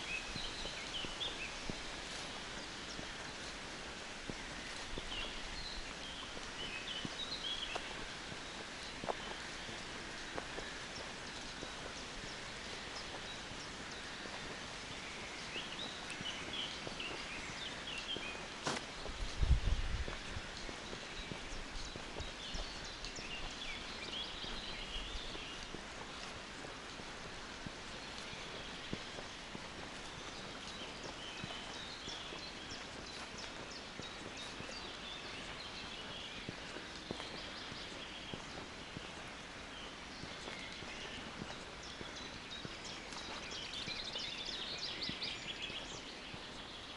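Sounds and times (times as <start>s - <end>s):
footsteps on forest floor: 0.0s - 46.9s
forest hush: 0.0s - 46.9s
songbird chirping: 0.0s - 46.9s
steady outdoor hiss: 0.0s - 46.9s.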